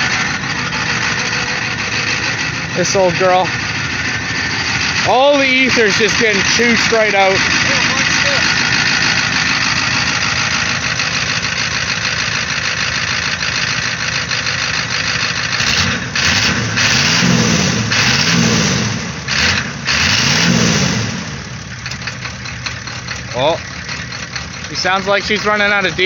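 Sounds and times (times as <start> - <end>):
diesel engine running rough: 0.0 - 26.0.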